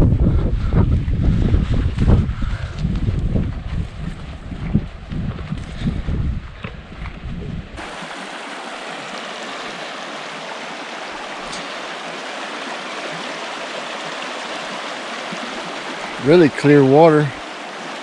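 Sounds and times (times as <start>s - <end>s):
wind rumbling on microphone: 0.0s - 17.9s
river flowing: 7.8s - 18.0s.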